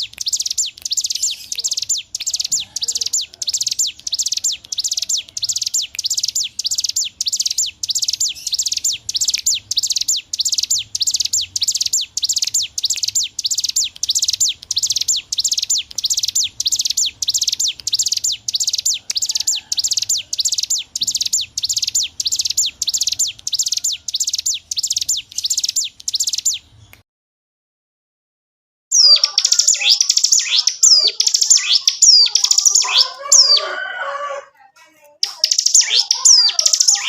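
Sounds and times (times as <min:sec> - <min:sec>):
bird singing high falling notes: 0:28.9 - 0:34.4, 0:35.2 - 0:37.0.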